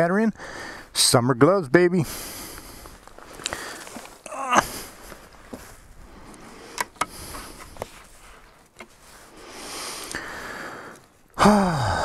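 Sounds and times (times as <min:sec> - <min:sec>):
riding gear rustling: 0:02.0 - 0:11.4.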